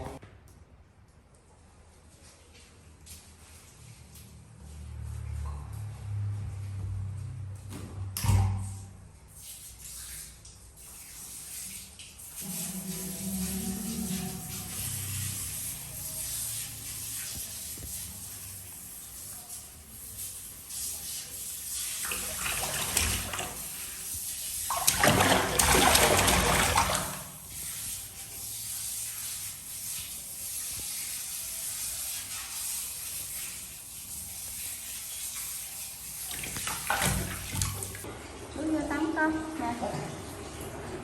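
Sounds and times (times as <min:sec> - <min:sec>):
water running and splashing: 0:09.3 - 0:38.2.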